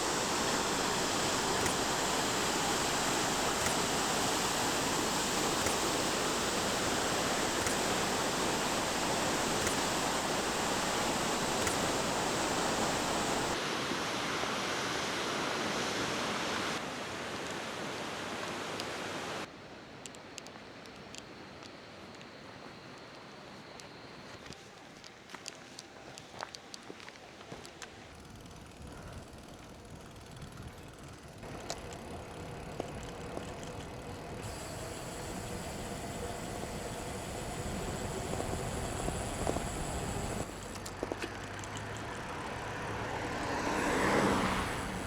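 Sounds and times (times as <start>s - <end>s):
light clicks: 0.0s - 13.6s
waterfall roaring: 0.0s - 19.5s, 34.4s - 40.9s.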